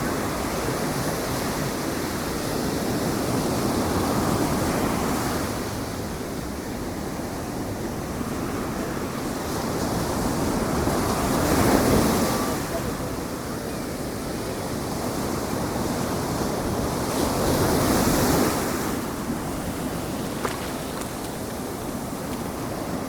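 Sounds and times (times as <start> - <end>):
ocean surf breaking: 16.2 - 23.0.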